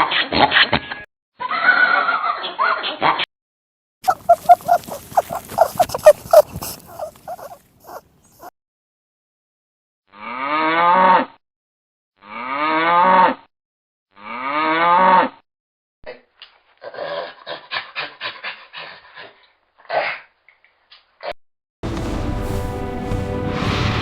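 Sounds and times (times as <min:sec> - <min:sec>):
horse whinnying: 0:04.1 - 0:08.0.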